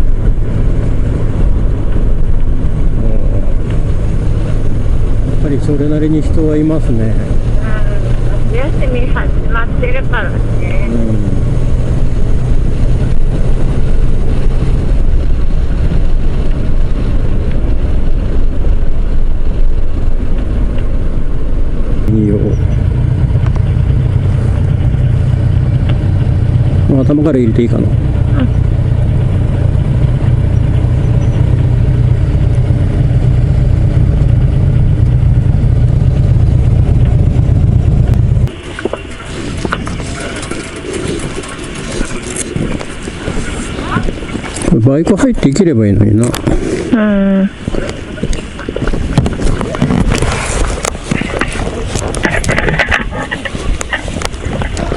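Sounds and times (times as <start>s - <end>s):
motorcycle engine hum: 0.0s - 54.9s
road rumble: 0.0s - 54.9s
wind rush on microphone: 0.0s - 54.9s
motorcycle engine idling: 22.1s - 42.6s.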